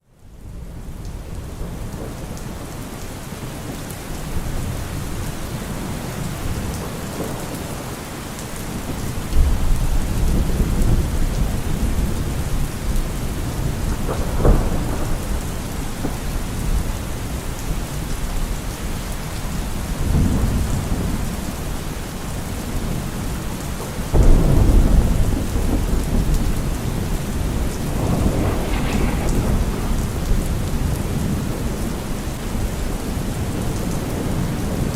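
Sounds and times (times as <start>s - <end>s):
heavy rain falling: 0.2s - 34.9s
thunder rumbling: 24.1s - 34.9s.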